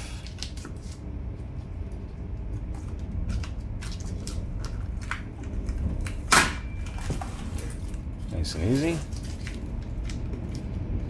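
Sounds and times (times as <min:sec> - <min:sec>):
tape being peeled: 0:00.0 - 0:11.0
small crackles and clicks: 0:01.4 - 0:06.2, 0:07.7 - 0:11.0.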